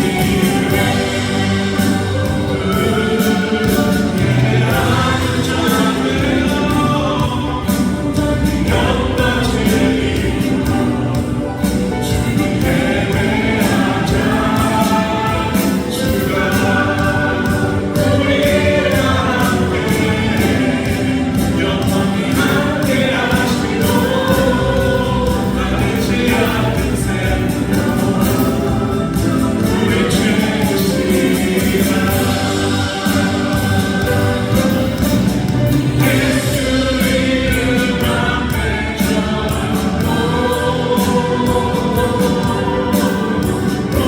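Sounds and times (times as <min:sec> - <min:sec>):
choir singing with accompaniment: 0:00.0 - 0:44.0.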